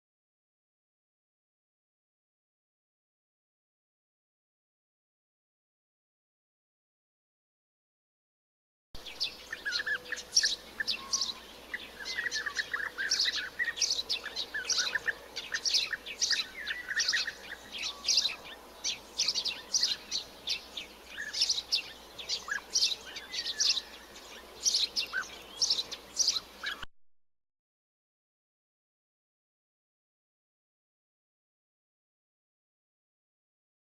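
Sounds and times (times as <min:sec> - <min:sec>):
birds chirping: 0:09.0 - 0:26.9
low bird warbling: 0:09.0 - 0:26.9.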